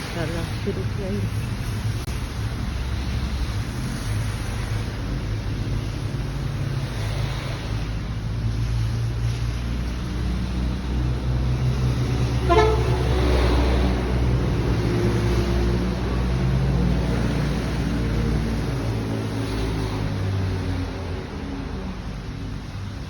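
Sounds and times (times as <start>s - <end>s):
low vehicle rumble: 0.0s - 23.0s
horn toots: 12.2s - 14.0s.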